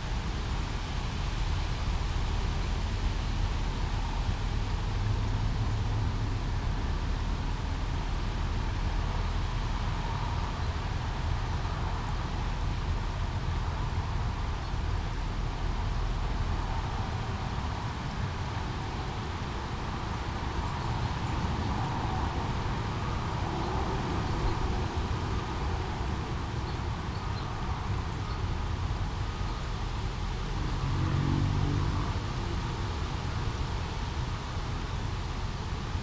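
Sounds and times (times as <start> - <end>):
low rumble of city traffic: 0.0 - 36.0
vehicle engine passing: 30.7 - 32.6.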